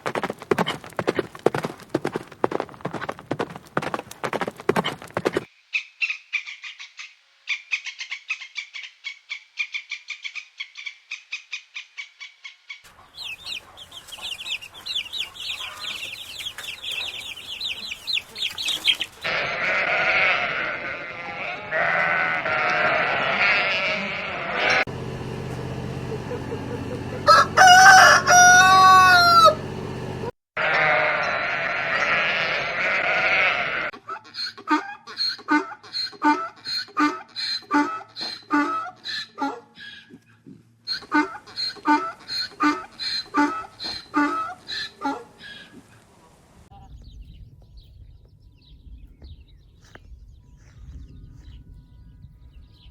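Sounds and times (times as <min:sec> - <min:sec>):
low outdoor rumble: 0:20.5 - 0:30.4
rooster crowing: 0:25.9 - 0:29.8.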